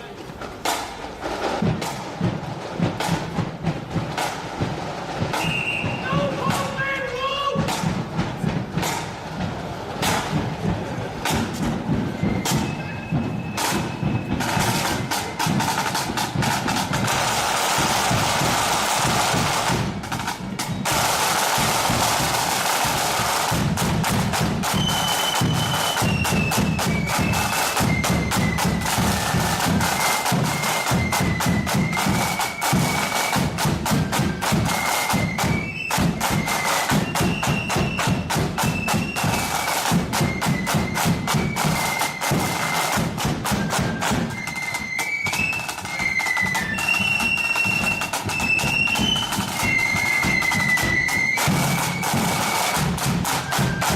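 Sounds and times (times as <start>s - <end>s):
snare drums rattling: 0.3s - 53.9s
flutes playing high melody: 5.3s - 7.7s, 11.9s - 19.2s, 24.6s - 53.9s.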